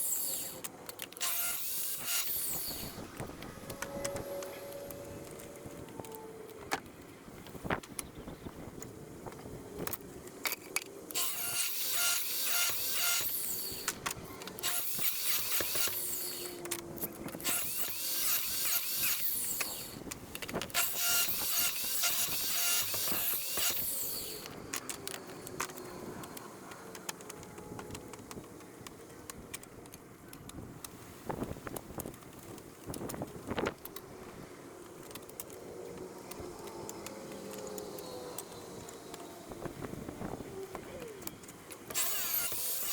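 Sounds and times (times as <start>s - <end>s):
saw cutting wood: 0.0s - 5.6s, 11.1s - 24.9s, 41.9s - 42.9s.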